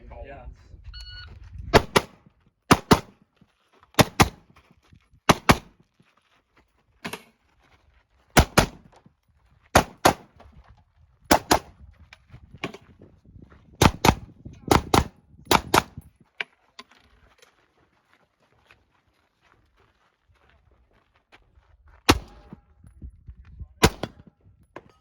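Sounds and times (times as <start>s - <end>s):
rifle shots: 1.7s - 3.2s, 4.0s - 4.4s, 5.3s - 5.7s, 8.4s - 8.8s, 9.8s - 10.3s, 11.3s - 11.7s, 13.8s - 16.0s, 22.1s - 22.6s, 23.8s - 24.3s.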